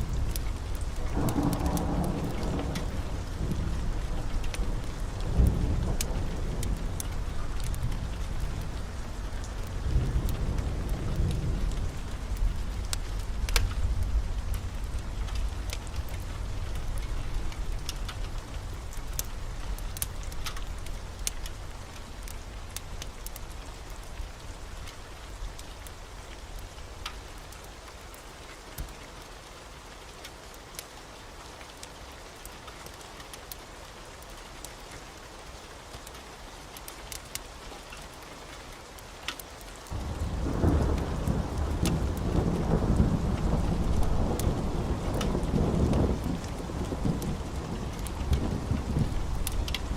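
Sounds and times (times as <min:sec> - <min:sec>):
heavy rain: 0:00.0 - 0:49.9
thunder rumbling: 0:00.1 - 0:18.1, 0:39.9 - 0:49.9.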